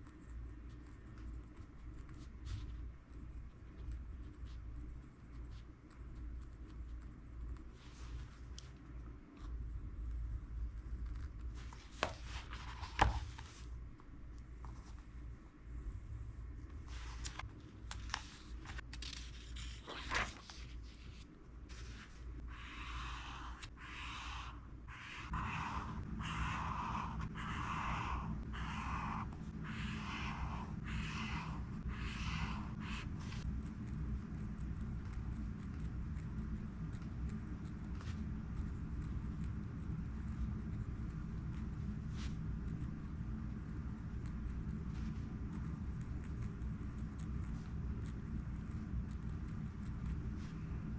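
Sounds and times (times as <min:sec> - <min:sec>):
low steady hum: 0:00.0 - 0:50.9
pen scratching on paper: 0:21.7 - 0:41.5.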